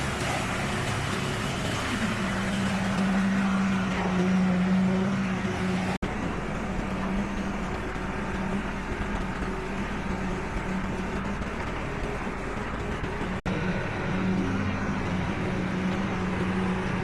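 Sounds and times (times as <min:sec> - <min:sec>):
heavy machinery diesel engines running: 0:00.0 - 0:17.0
low engine hum: 0:00.0 - 0:17.0.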